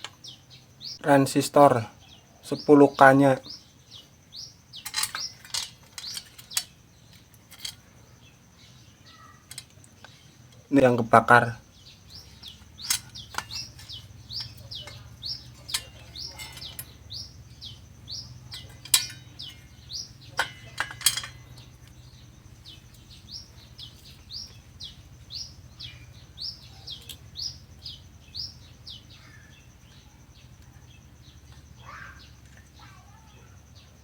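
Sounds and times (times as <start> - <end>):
low steady hum: 0.0 - 34.0
small bird chirping: 0.0 - 34.0
sharp metallic clicks: 4.7 - 7.9, 9.4 - 11.1, 12.1 - 28.5.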